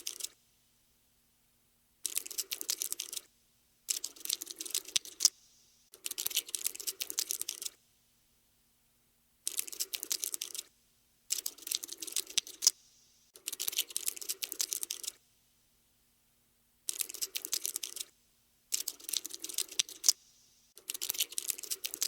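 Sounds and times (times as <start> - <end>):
cockroach legs scuttling: 11.3 - 12.8, 18.7 - 20.2, 20.8 - 22.0.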